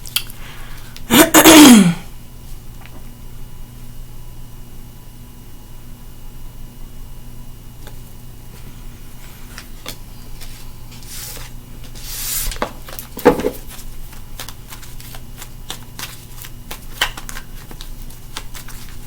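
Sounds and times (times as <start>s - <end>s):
cards clicking while shuffled: 9.5s - 19.0s.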